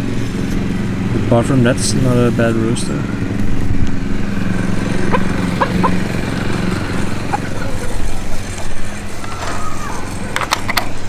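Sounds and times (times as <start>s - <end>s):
small engine running: 0.0s - 11.0s
chickens chirping: 2.2s - 10.2s.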